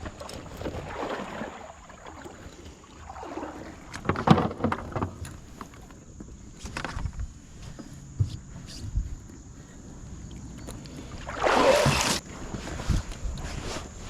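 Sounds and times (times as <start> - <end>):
water sloshing around kayak: 0.0 - 14.0
knocks against hull: 3.9 - 5.3.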